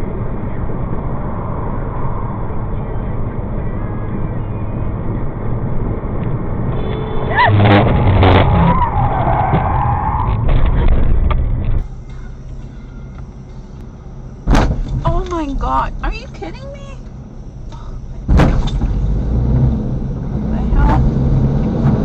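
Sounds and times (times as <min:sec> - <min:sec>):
car driving noise: 0:00.0 - 0:22.0
sharp knocks: 0:14.5 - 0:15.2, 0:18.3 - 0:18.9.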